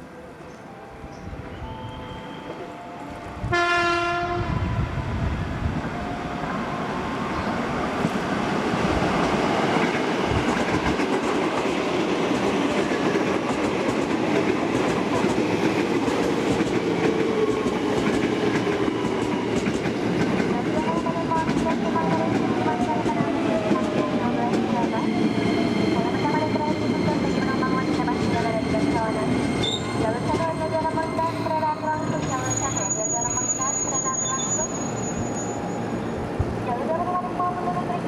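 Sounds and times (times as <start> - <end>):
train passing rumble: 0.0 - 38.0
train horn blast: 2.1 - 5.0.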